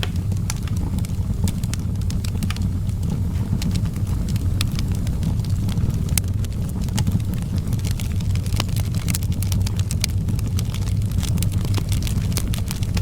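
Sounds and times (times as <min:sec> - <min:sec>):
low fire rumble: 0:00.0 - 0:13.0
wood fire crackling and popping: 0:00.0 - 0:13.0.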